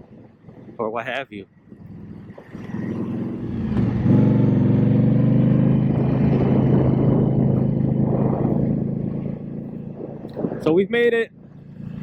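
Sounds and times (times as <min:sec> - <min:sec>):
motorcycle engine running loud: 0:00.0 - 0:12.0.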